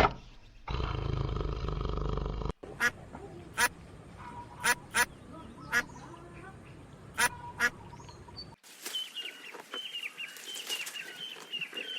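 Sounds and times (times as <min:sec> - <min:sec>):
duck quacking: 0:02.6 - 0:03.0, 0:04.3 - 0:06.0, 0:07.2 - 0:07.9.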